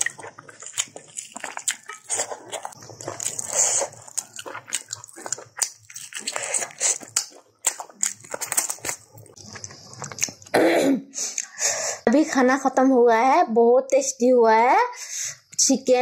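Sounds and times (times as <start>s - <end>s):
person chewing meat: 0.0s - 10.5s
mouth clicks and smacks: 11.2s - 11.6s.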